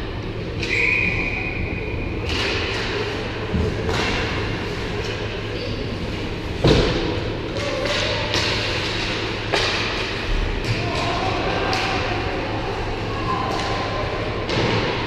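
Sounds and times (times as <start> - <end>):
hockey sticks and puck knocking: 2.2 - 4.4, 6.6 - 12.0.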